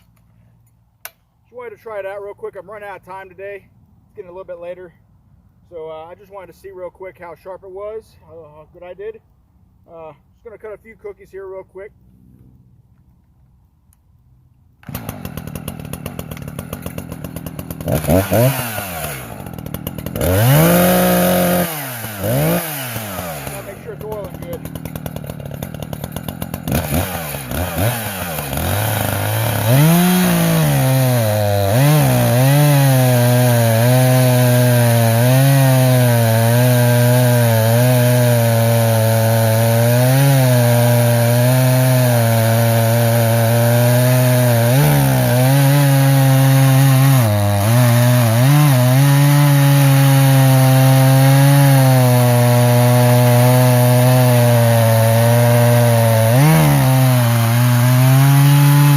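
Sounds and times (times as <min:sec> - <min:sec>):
chainsaw cutting log: 0:14.8 - 0:58.9.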